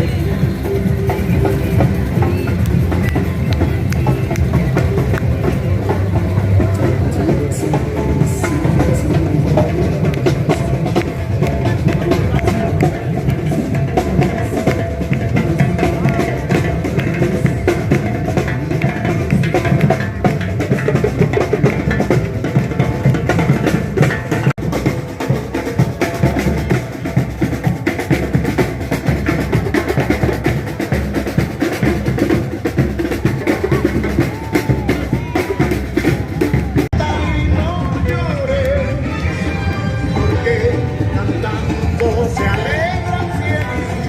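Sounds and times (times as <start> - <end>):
music with busy drum beat: 0.0 - 44.0.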